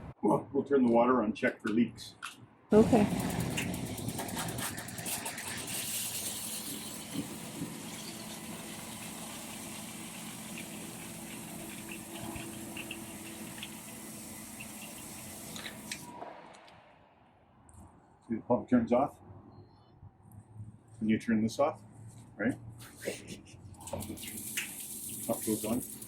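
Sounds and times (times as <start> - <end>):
water pump running: 2.8 - 16.2, 23.8 - 26.0
water gushing through pipes: 2.9 - 16.2, 23.8 - 26.0.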